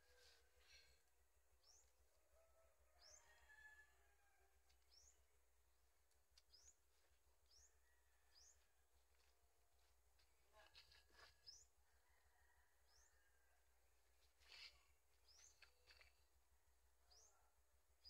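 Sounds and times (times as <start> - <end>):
faint bird chirps: 0.0 - 3.8, 4.8 - 5.3, 6.4 - 9.2, 14.3 - 16.3, 17.0 - 17.6.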